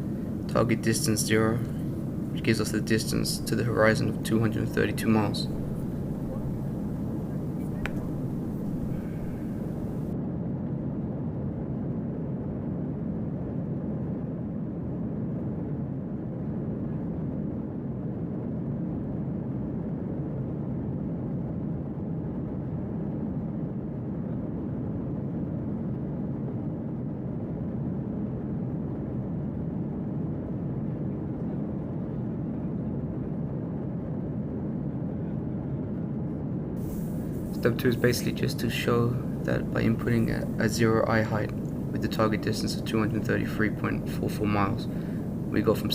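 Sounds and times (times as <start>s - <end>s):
jet engine cabin rumble: 0.0s - 10.2s, 36.8s - 45.9s.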